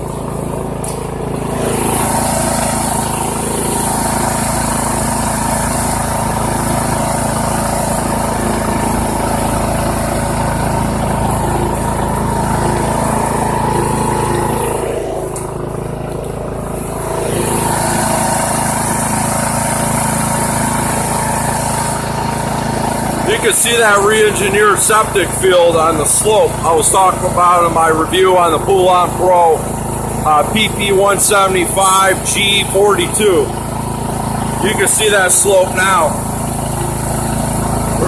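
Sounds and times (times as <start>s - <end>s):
lawn tractor engine running: 0.0s - 38.0s.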